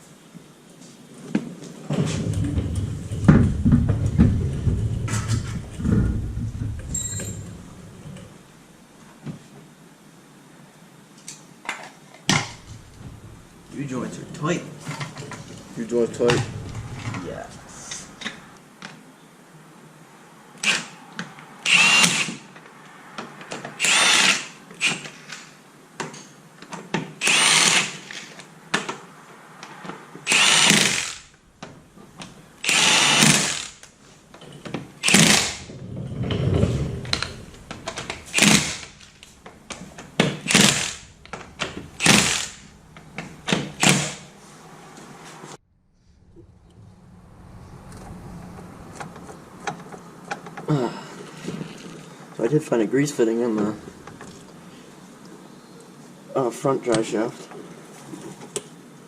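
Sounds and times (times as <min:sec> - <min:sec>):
cordless grease gun motor: 0:27.2 - 0:28.3, 0:30.3 - 0:31.2, 0:32.6 - 0:33.9, 0:42.0 - 0:42.6.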